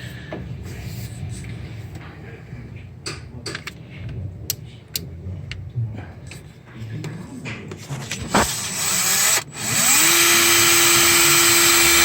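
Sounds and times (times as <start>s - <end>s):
power drill whining under load: 8.3s - 12.0s.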